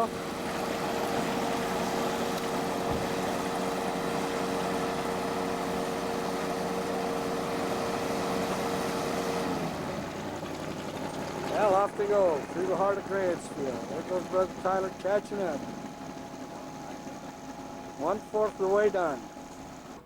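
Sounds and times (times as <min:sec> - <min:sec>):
vehicle engine hum: 0:00.0 - 0:20.0
constant tone: 0:10.4 - 0:20.0.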